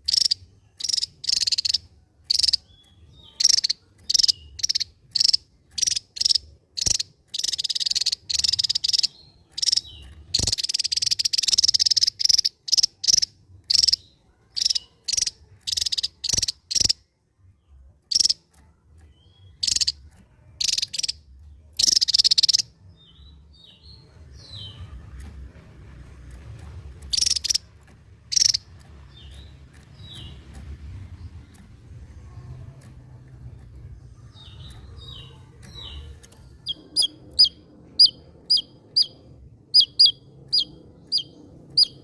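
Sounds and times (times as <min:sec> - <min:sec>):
bird singing buzzy drilling bursts: 0:00.0 - 0:14.0, 0:27.0 - 0:27.6
thin bird chirps: 0:00.0 - 0:25.0, 0:27.0 - 0:42.0.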